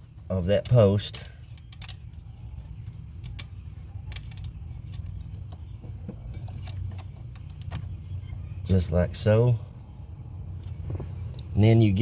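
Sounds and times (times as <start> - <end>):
steady low hum: 0.0 - 12.0
light metallic clicks and clinks: 0.6 - 8.0.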